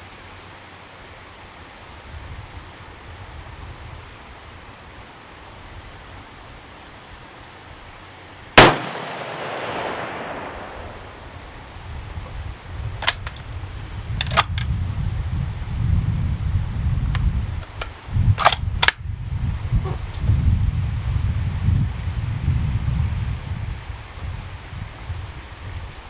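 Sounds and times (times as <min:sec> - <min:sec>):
rifle shot echoing: 0:08.6 - 0:11.5
handling noise: 0:08.6 - 0:14.8, 0:17.0 - 0:19.0
rifle bolt clicks: 0:13.0 - 0:13.4, 0:14.2 - 0:14.7, 0:17.6 - 0:19.0.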